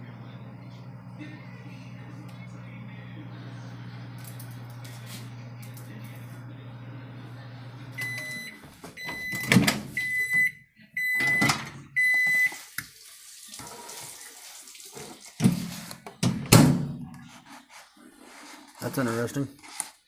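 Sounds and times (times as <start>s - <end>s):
microwave oven hum: 0.0s - 12.6s
microwave beeps: 7.6s - 12.7s.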